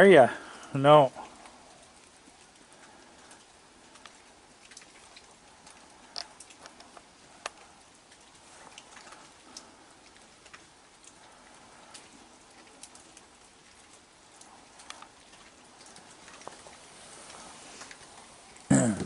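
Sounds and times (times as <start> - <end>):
light rain hiss: 0.0 - 19.0
rain drips and ticks: 0.0 - 19.0.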